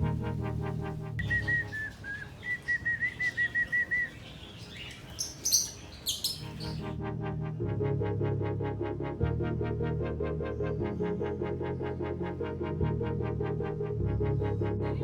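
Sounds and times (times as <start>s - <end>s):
electronic background music: 0.0s - 1.8s, 6.3s - 15.0s
high chirps: 1.2s - 6.9s.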